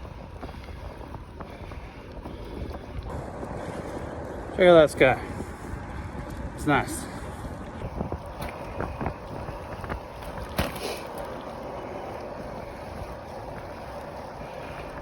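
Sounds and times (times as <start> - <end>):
bicycle road noise: 0.0 - 15.0
wind on microphone: 0.0 - 15.0.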